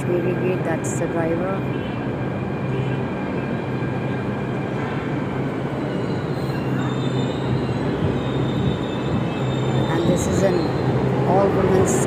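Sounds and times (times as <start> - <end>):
train wheels rumbling on rail: 0.0 - 12.0
high brake squeal: 4.8 - 11.4.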